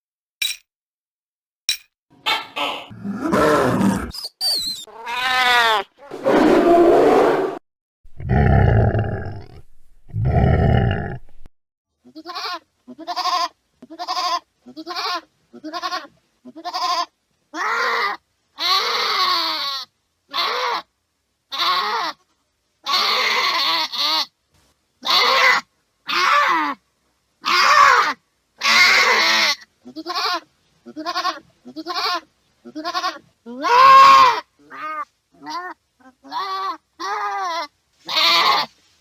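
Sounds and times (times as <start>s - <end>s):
goats bleating: 28.7s - 38.7s.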